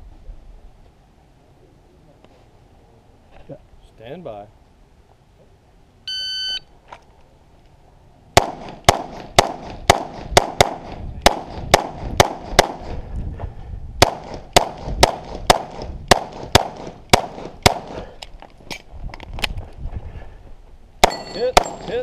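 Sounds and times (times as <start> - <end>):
shot-timer beep: 6.1 - 6.7
pistol shots: 8.4 - 12.9, 14.0 - 18.0, 21.0 - 22.0.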